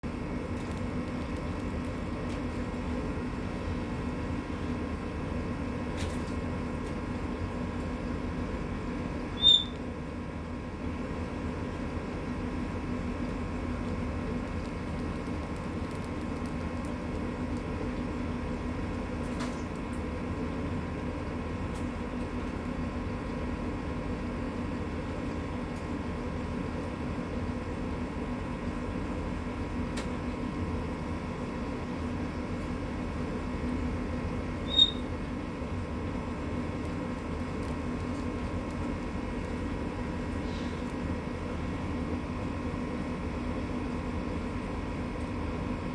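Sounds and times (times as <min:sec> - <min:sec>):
steady mechanical hum: 0:00.0 - 0:45.9
high bird chirp: 0:09.4 - 0:09.8, 0:34.6 - 0:35.1.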